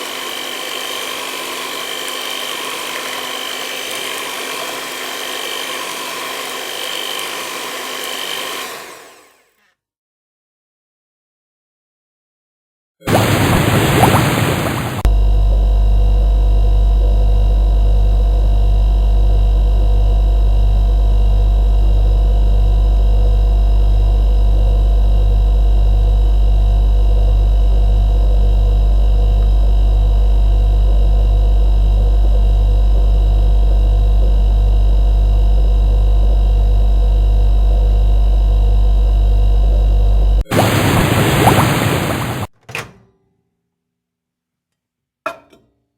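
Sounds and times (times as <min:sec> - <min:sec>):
kitchen appliance humming: 0:00.0 - 0:09.5.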